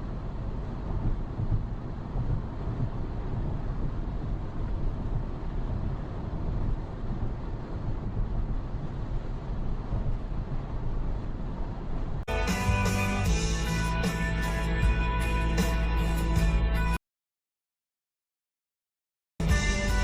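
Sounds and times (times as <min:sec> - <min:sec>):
wind noise: 0:00.0 - 0:12.2
vehicle engine and road noise: 0:00.0 - 0:17.0.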